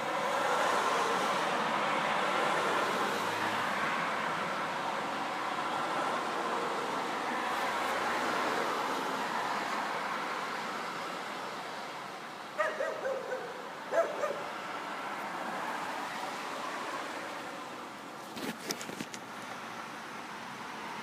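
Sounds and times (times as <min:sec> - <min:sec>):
passing traffic: 0:00.0 - 0:21.0
dog yelping: 0:12.6 - 0:14.5.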